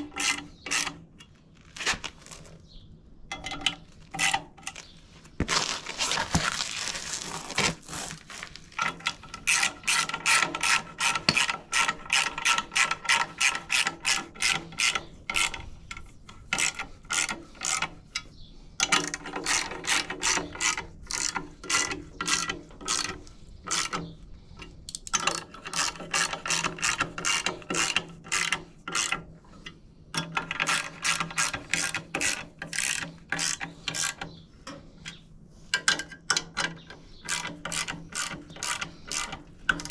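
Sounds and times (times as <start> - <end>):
ratchet wrench clicking: 37.3 - 39.9.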